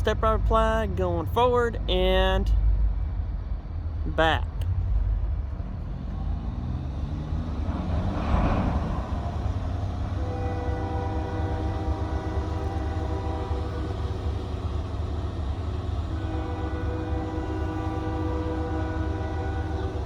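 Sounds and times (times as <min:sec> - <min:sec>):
low rumble: 0:01.8 - 0:09.5
locomotive air horn blasts: 0:10.0 - 0:14.9, 0:15.5 - 0:20.0.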